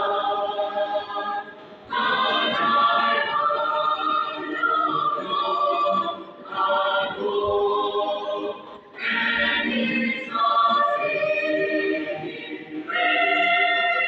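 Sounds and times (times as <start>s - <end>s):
choir singing: 0.0s - 14.0s.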